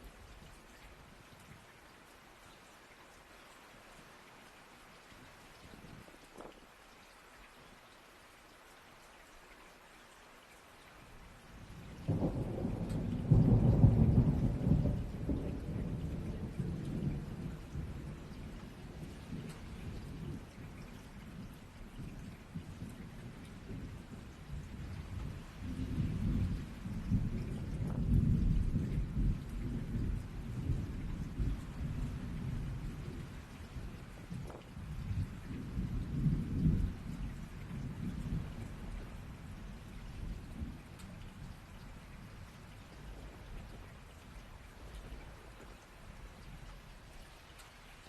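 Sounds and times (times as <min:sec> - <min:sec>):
steady rain: 0:00.0 - 0:48.0
thunder rumbling: 0:11.6 - 0:20.5, 0:22.5 - 0:45.8.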